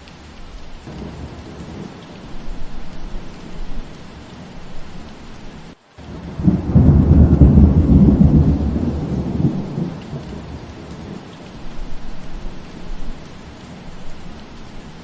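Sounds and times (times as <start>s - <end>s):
steady rain: 0.0s - 15.0s
thunder rumble: 0.8s - 5.2s, 6.0s - 13.3s.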